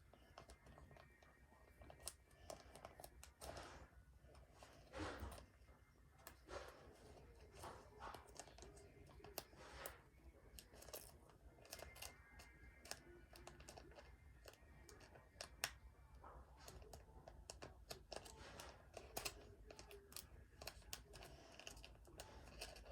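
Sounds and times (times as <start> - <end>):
trading cards rustling and clicking: 6.3 - 22.9.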